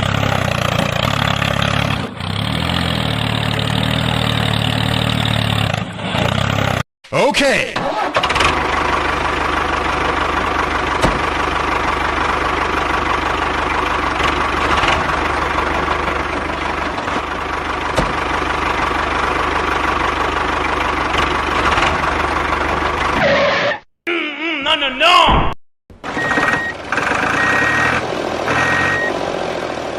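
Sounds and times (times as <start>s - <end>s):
small tractor motor running: 7.9s - 23.2s.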